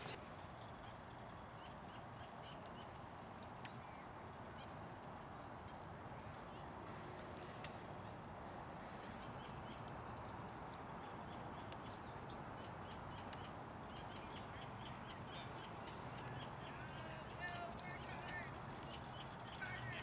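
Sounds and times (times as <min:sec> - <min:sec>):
outdoor background hiss: 0:00.0 - 0:20.0
small birds chirping: 0:00.0 - 0:20.0.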